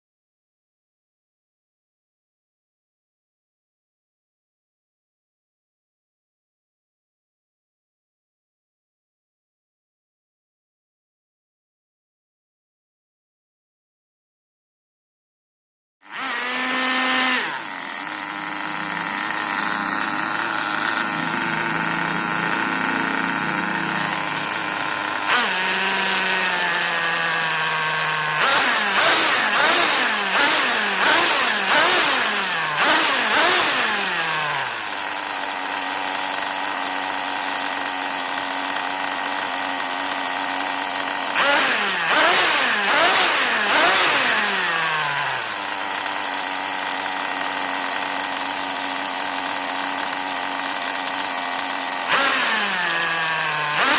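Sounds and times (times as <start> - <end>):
small engine idling and revving: 16.0 - 53.9.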